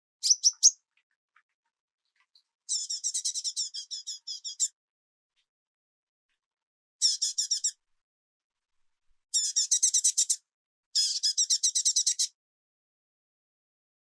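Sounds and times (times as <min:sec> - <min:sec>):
bird chirping rapidly: 0:00.2 - 0:00.8, 0:02.7 - 0:04.7, 0:07.0 - 0:07.7, 0:09.4 - 0:10.4, 0:11.0 - 0:12.3.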